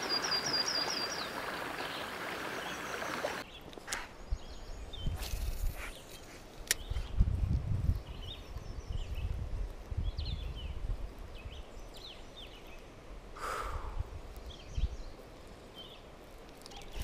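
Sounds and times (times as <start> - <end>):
small birds chirping: 0.0 - 7.2, 7.8 - 9.4, 10.0 - 13.7, 14.4 - 17.0
wind rumble on microphone: 6.8 - 12.5, 13.8 - 15.2.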